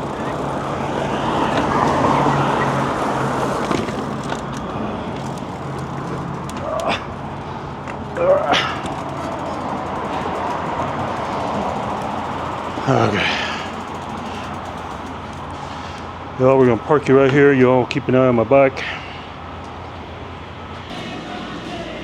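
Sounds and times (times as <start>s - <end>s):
short rising squeals: 0.0s - 16.3s
wind: 0.0s - 20.9s
steady low hum: 0.0s - 22.0s
street noise: 0.0s - 22.0s.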